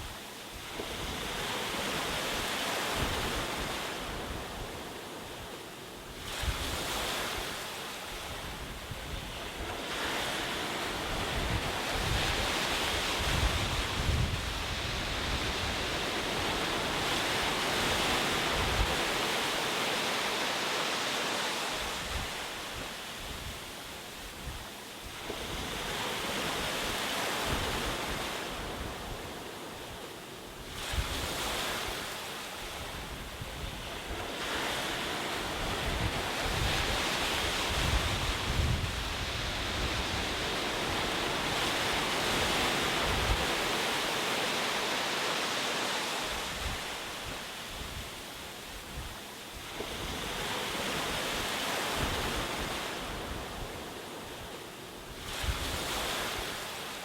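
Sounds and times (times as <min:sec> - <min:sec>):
ocean waves breaking: 0:25.1 - 0:48.4.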